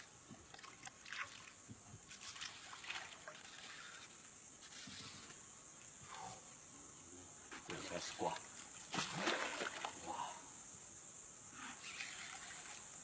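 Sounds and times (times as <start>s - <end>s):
small water splashes and drips: 0.0s - 4.8s, 7.7s - 10.2s.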